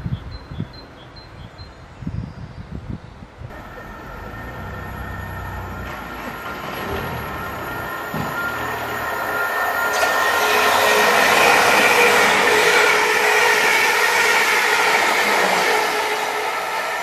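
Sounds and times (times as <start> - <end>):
electric train whine: 3.5 - 17.0
high rushing hiss of train: 7.9 - 17.0.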